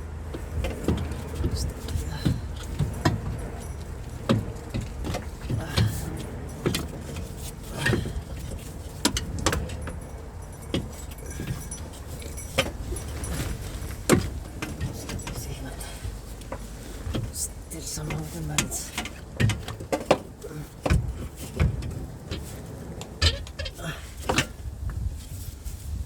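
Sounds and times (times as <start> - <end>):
metallic clinks of hand tools: 9.2 - 13.8.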